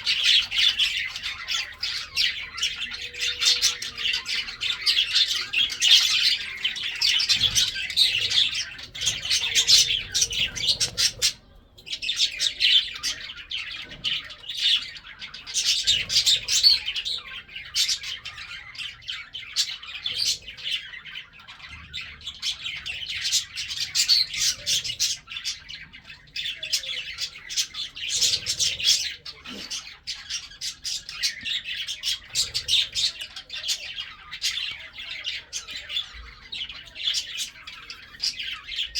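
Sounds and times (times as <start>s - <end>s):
lovebirds chirping: 0.0s - 38.9s.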